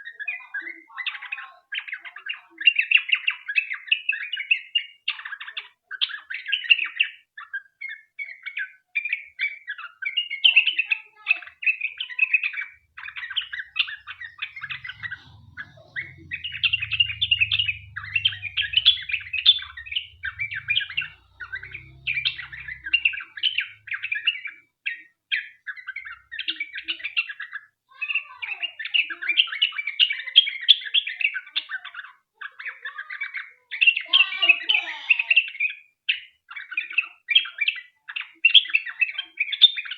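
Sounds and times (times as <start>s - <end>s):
bird singing chattering notes: 11.7s - 25.0s.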